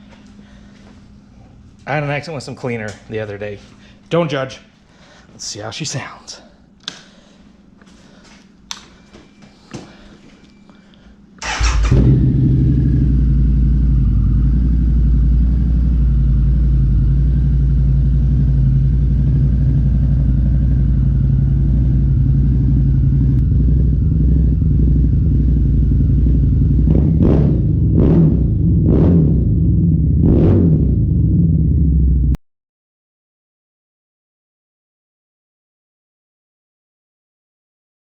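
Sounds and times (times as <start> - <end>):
motorcycle engine starting and idling: 11.4 - 32.4.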